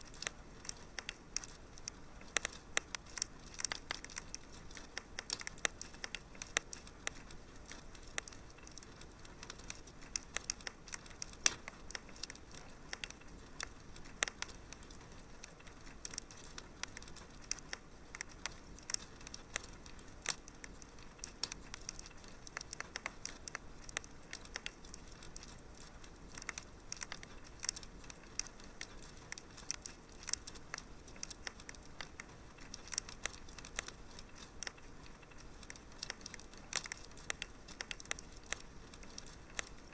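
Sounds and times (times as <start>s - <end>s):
fire crackling and popping: 0.0s - 39.9s
soft steady hiss: 0.0s - 39.9s.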